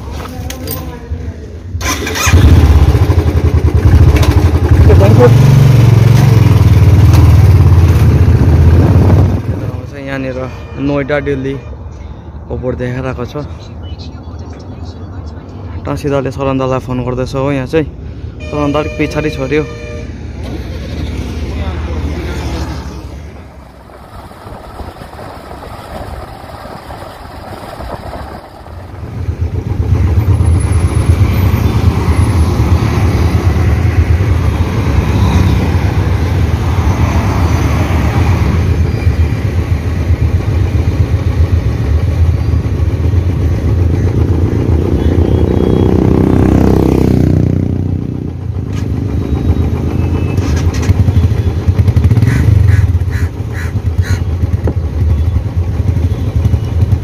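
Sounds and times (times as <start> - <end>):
motorcycle engine running: 1.8 - 9.9, 28.0 - 57.0.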